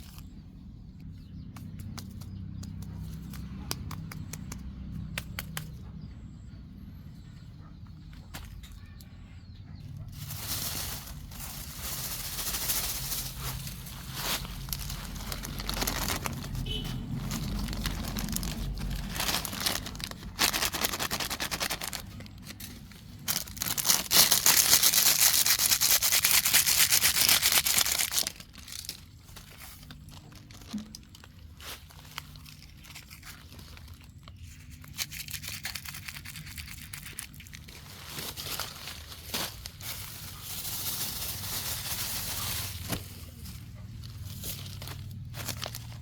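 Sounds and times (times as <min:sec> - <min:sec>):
plastic crinkling and rustling: 0:10.0 - 0:46.0.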